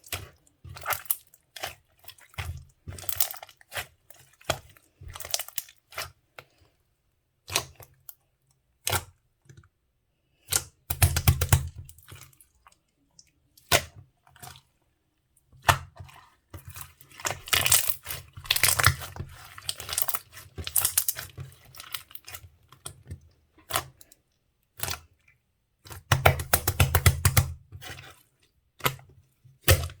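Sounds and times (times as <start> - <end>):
slime squished by hand: 15.6 - 22.4.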